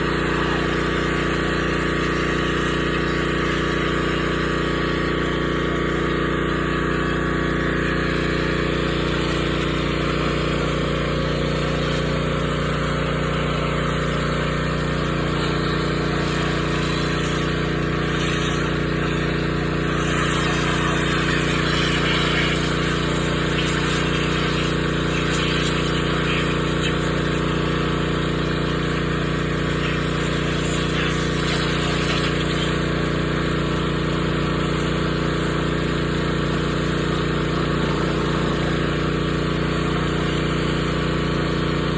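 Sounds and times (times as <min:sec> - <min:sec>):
pressure washer drone: 0:00.0 - 0:41.9
water spray hissing: 0:14.4 - 0:33.0.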